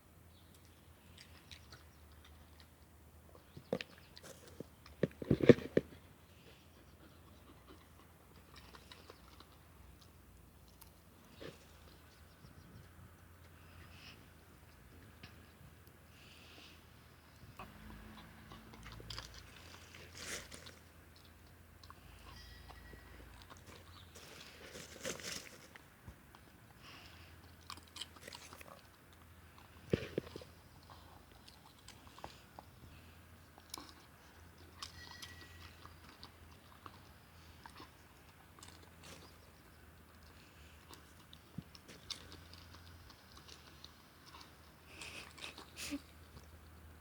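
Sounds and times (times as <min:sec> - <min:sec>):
dog crunching food: 0:18.1 - 0:22.2, 0:27.5 - 0:32.4, 0:33.0 - 0:39.5, 0:40.1 - 0:45.8.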